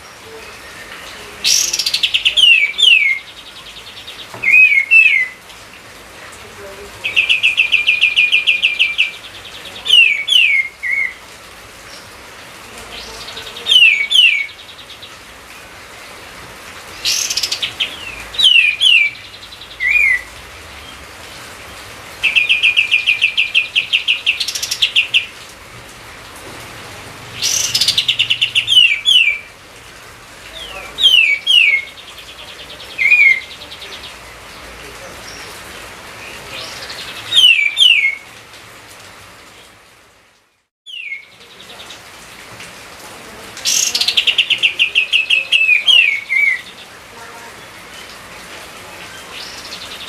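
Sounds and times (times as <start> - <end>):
songbird singing: 0.0 - 25.6, 26.2 - 38.5, 40.8 - 42.4, 43.2 - 50.0.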